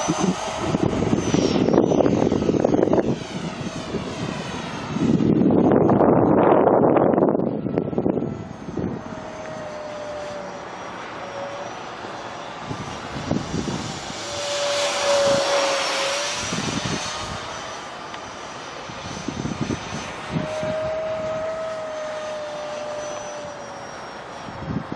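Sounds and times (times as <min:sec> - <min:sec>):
wind buffeting microphone: 0:00.0 - 0:18.0, 0:18.6 - 0:24.9
model jet whine flying past: 0:00.0 - 0:24.9.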